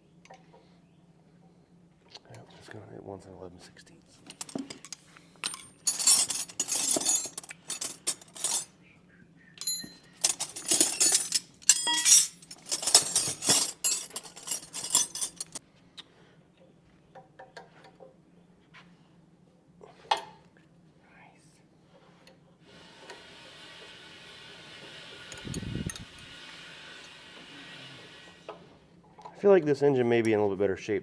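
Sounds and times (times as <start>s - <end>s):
metal wrenches clinking: 4.3s - 8.7s, 9.6s - 15.6s.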